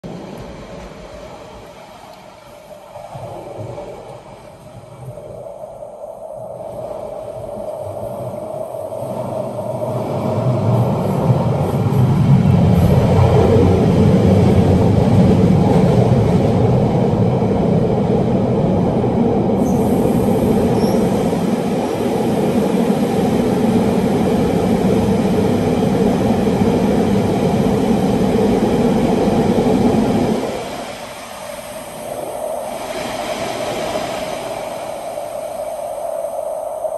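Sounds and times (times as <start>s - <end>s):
train rumbling through a tunnel: 0.0s - 36.9s.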